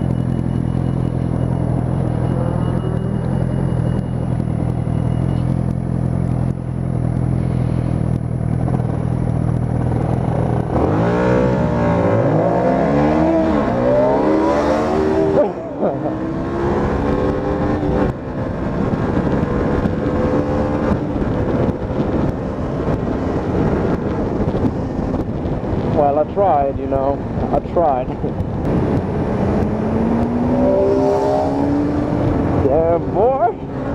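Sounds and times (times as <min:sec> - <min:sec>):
motorcycle engine accelerating: 0:00.0 - 0:26.0, 0:26.6 - 0:33.9.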